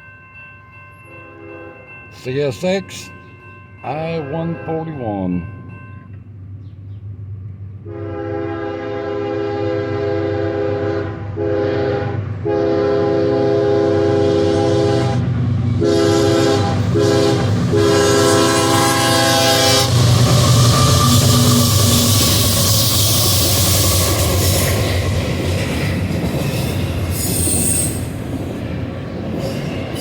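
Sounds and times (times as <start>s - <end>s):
passing locomotives rumbling: 0.0s - 30.0s
locomotive air horn blasts: 7.8s - 15.2s, 15.8s - 20.1s.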